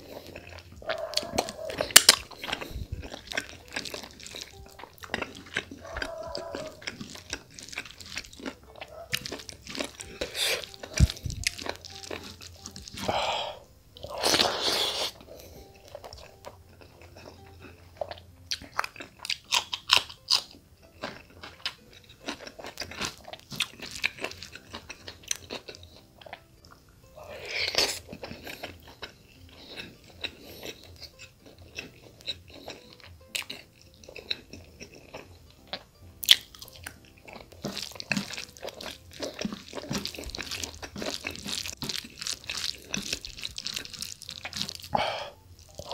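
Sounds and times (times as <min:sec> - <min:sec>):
hands squishing rice in gravy: 0:00.0 - 0:16.4, 0:36.3 - 0:45.9
chewing and crunching: 0:00.0 - 0:45.9.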